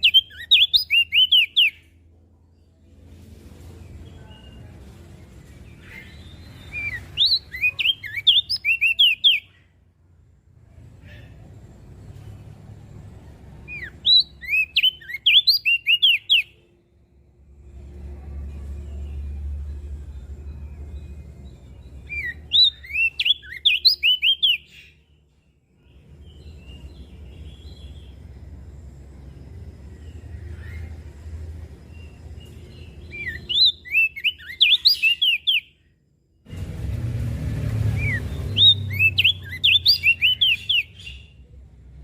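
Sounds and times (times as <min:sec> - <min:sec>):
bird chirping rapidly: 0:00.0 - 0:01.9, 0:05.6 - 0:09.8, 0:13.6 - 0:16.6, 0:20.9 - 0:25.1, 0:31.8 - 0:35.9, 0:37.7 - 0:41.4
low steady rumble: 0:16.6 - 0:22.9, 0:36.1 - 0:40.3.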